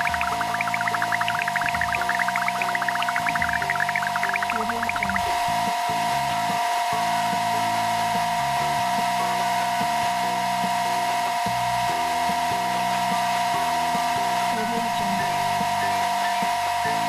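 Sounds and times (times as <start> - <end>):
low stepping tune: 0.0 - 5.6.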